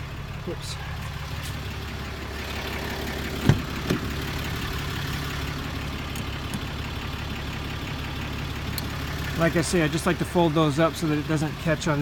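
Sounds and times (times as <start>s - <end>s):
truck engine idling: 0.0s - 12.0s
seat folding knocks: 3.4s - 4.2s.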